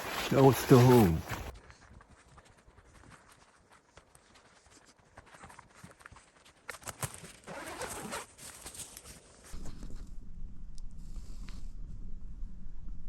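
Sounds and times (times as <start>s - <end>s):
rustling: 0.0s - 1.5s.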